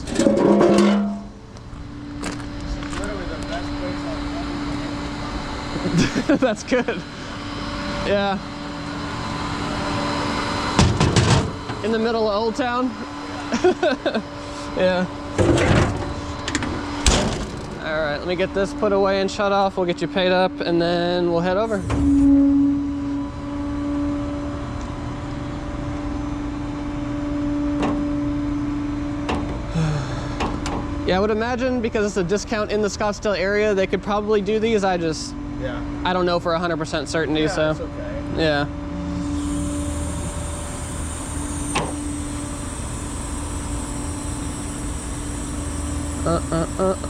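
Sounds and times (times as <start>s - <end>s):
tow truck engine humming: 1.2s - 20.6s, 37.3s - 47.0s.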